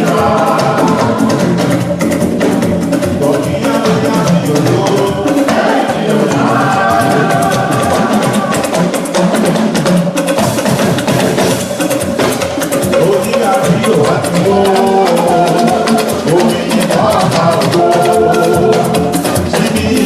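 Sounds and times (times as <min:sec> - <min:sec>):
people singing: 0:00.0 - 0:10.0, 0:12.7 - 0:20.0
wood block clicks and drums: 0:00.0 - 0:20.0.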